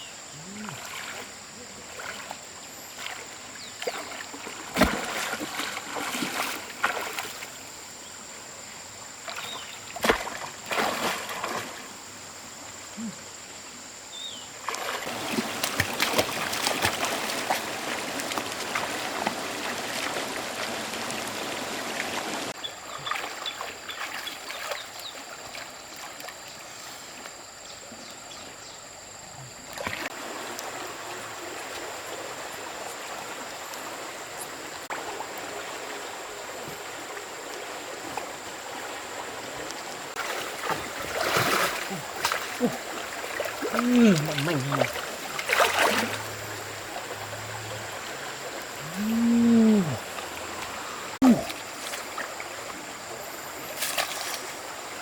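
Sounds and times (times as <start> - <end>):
water splashing and trickling: 0.4 - 13.1, 14.5 - 55.0
loud rush of splashing water: 14.9 - 22.6, 40.1 - 47.1.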